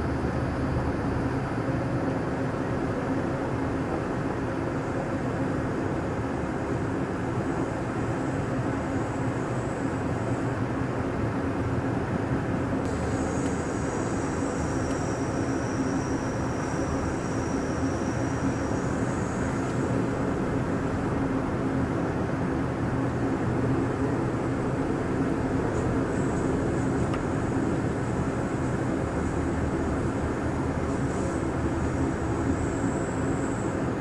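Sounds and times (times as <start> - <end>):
constant low hum: 0.0 - 34.0
train rumbling: 12.2 - 34.0
faint high-pitched whines: 12.8 - 22.0.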